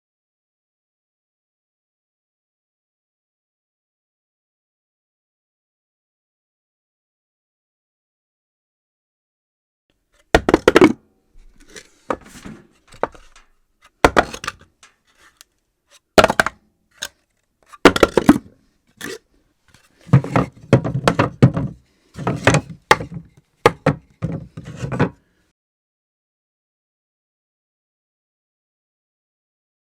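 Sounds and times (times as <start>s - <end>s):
objects dropped on hard floor: 16.2s - 16.6s.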